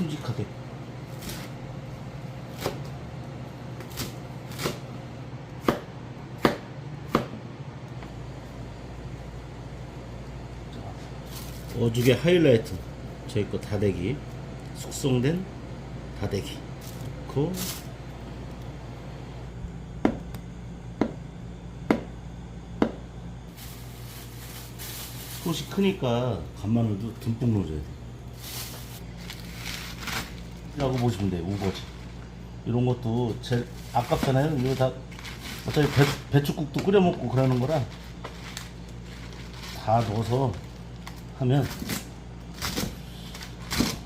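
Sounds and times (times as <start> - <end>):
low steady hum: 0.0 - 44.0
knife chopping on cutting board: 2.6 - 2.9, 3.8 - 4.8, 5.6 - 7.4, 21.9 - 22.1, 22.8 - 23.0.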